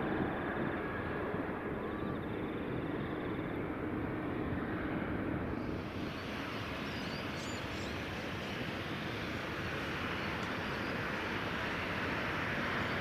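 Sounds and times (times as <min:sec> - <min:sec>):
jet engines roaring: 0:05.5 - 0:13.0
faint bird chirps: 0:06.0 - 0:08.6.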